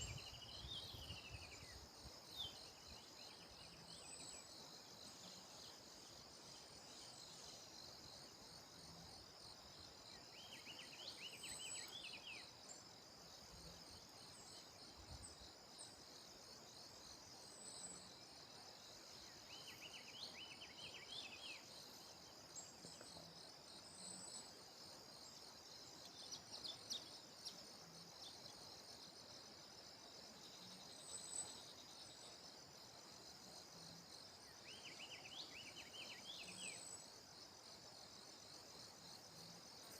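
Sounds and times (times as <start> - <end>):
bird chirping: 0.0 - 8.6, 9.8 - 14.9, 17.0 - 29.5, 34.1 - 37.2
insects trilling: 0.0 - 39.9.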